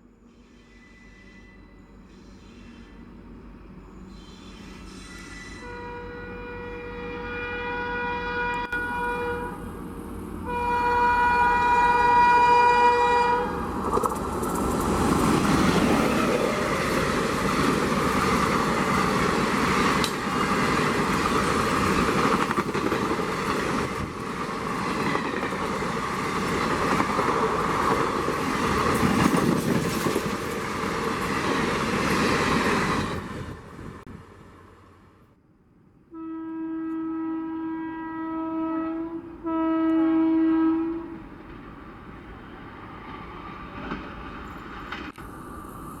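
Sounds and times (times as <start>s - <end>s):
train rushing past: 0.4s - 35.3s, 39.3s - 46.0s
train horn blasts: 5.3s - 9.8s, 10.4s - 13.8s, 36.1s - 41.3s.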